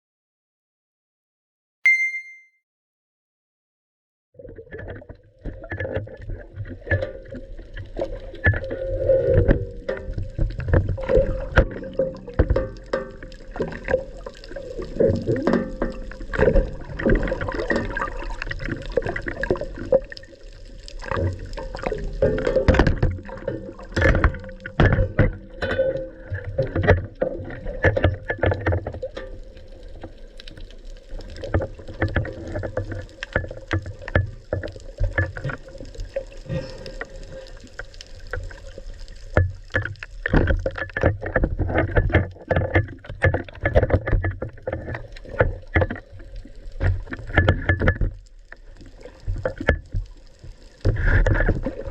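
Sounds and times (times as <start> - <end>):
water sloshing around a boat: 31.2 - 51.9.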